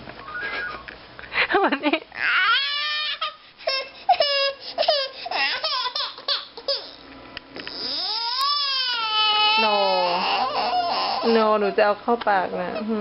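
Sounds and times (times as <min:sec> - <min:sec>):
baby wailing and squealing: 0:02.2 - 0:07.0, 0:07.7 - 0:11.5.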